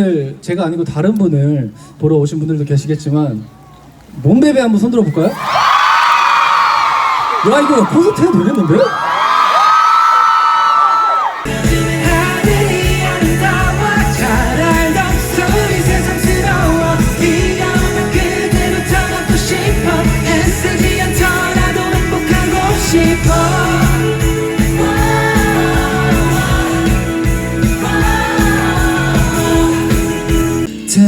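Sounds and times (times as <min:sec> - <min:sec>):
drums: 0:11.4 - 0:31.0
bass guitar: 0:11.5 - 0:30.7
electric guitar: 0:11.5 - 0:31.0
person singing: 0:11.5 - 0:31.0.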